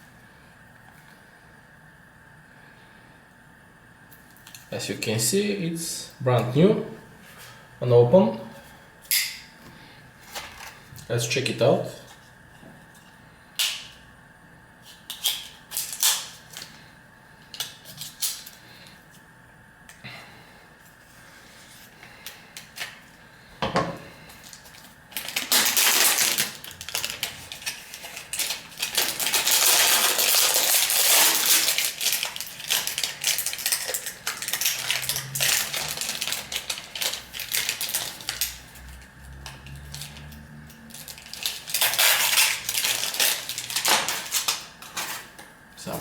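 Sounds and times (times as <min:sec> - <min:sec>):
cardboard and wrapping rustling: 0:24.3 - 0:40.2, 0:40.8 - 0:45.4.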